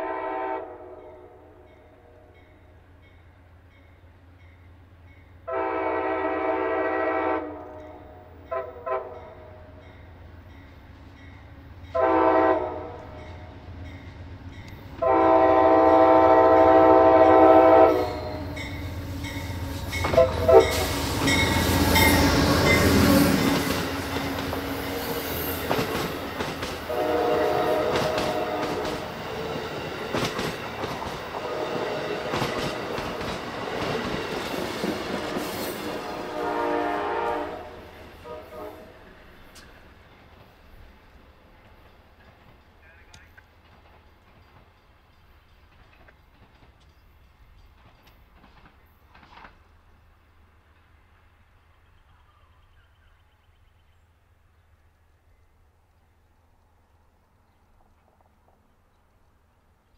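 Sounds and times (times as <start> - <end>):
locomotive air horn: 0.0 - 2.4, 5.4 - 9.7, 11.9 - 13.6, 15.0 - 18.8, 19.8 - 25.4, 26.9 - 29.2, 31.4 - 32.8, 35.1 - 39.0
train passing with loud rumble: 0.0 - 52.9
wheels clacking over rail joints: 18.4 - 36.0.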